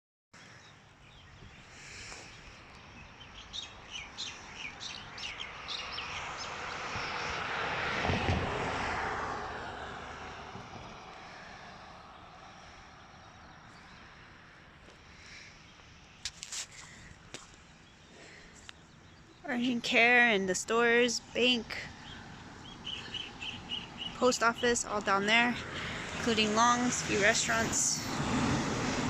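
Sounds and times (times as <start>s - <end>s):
bird chirping: 0.4s - 7.4s, 17.6s - 27.7s
vehicle passing: 1.8s - 16.2s, 17.7s - 29.0s.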